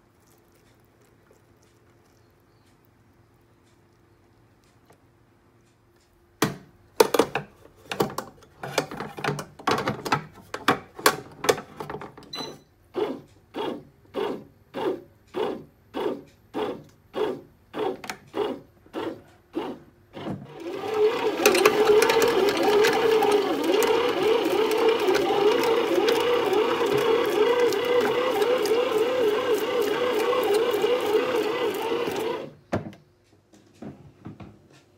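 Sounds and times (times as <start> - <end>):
bread machine motor kneading: 12.9 - 32.6.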